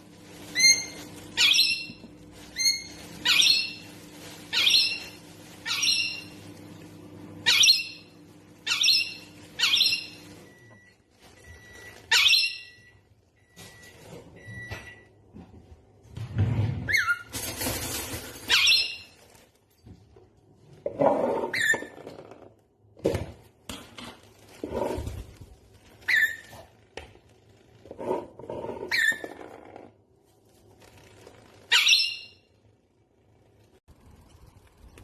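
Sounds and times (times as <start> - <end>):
rustling: 0.0 - 7.4, 17.3 - 20.3, 23.7 - 31.9
parrot squawking: 0.5 - 2.0, 2.6 - 3.9, 4.5 - 6.4, 7.4 - 10.2, 12.1 - 12.8, 26.0 - 26.7, 28.9 - 29.4, 31.7 - 32.5.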